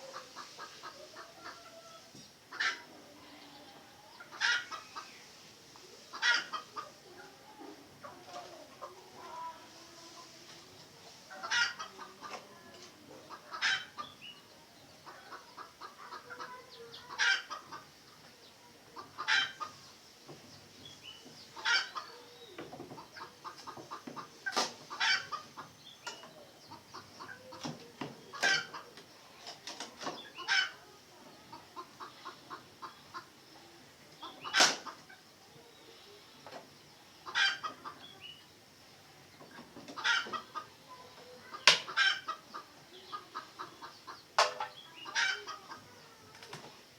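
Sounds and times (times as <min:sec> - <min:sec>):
junglefowl clucking: 0:00.0 - 0:05.2, 0:05.8 - 0:09.6, 0:11.3 - 0:14.3, 0:14.9 - 0:18.3, 0:18.9 - 0:20.0, 0:21.4 - 0:22.3, 0:22.9 - 0:35.3, 0:37.2 - 0:38.4, 0:39.4 - 0:46.6.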